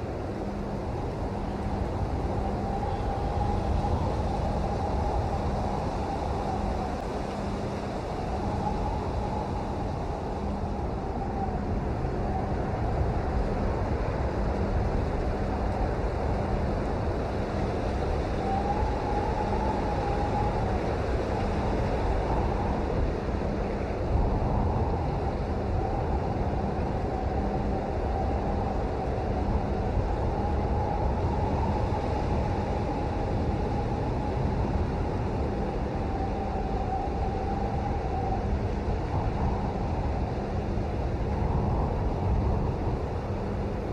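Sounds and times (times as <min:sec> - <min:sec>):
faint wavering tone: 0:00.3 - 0:12.8.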